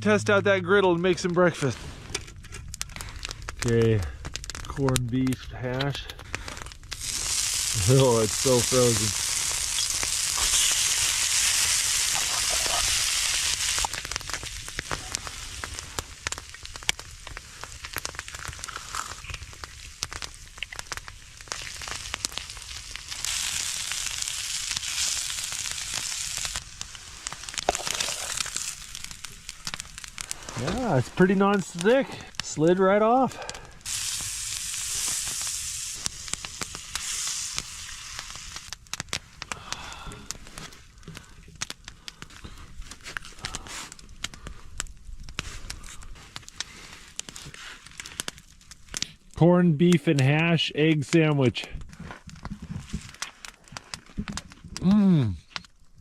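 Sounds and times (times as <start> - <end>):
pops and crackles: 0.0 - 56.0
food sizzling on a griddle: 6.4 - 40.6.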